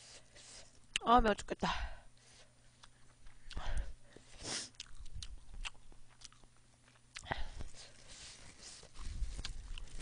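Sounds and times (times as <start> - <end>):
person chewing food: 2.3 - 10.0.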